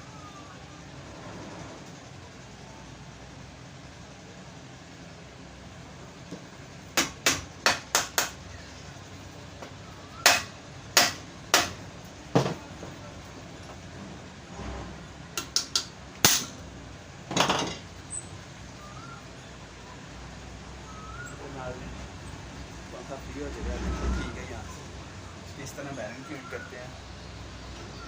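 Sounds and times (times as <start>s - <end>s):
hammer tapping on metal: 7.0s - 8.4s, 10.2s - 11.8s, 15.4s - 16.5s.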